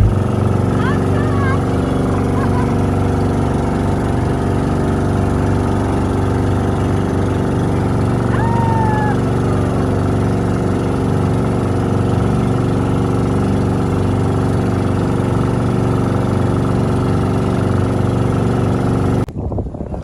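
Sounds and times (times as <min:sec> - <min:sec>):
boat engine running: 0:00.0 - 0:20.0
wind noise: 0:19.3 - 0:20.0.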